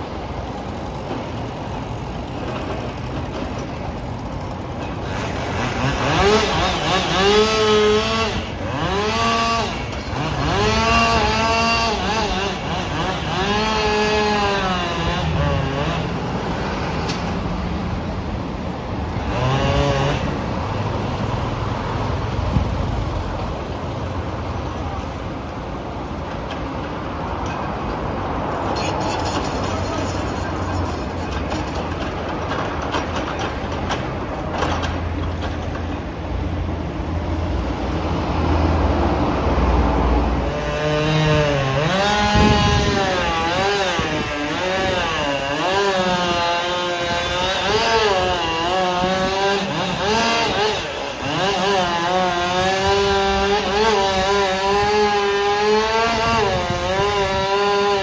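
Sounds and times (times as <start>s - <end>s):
chainsaw cutting wood: 4.2s - 17.3s, 19.1s - 20.5s, 40.4s - 58.0s.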